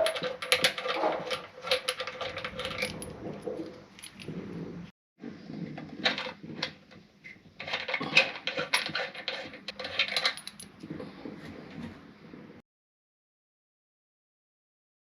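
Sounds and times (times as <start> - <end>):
small metal parts clinking: 0.0 - 4.3, 7.6 - 10.8.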